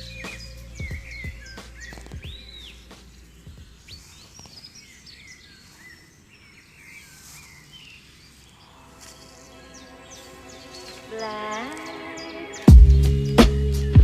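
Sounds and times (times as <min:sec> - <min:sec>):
soft music with held notes: 0:00.0 - 0:04.6, 0:08.6 - 0:14.0
birds chirping and whistling: 0:00.0 - 0:14.0.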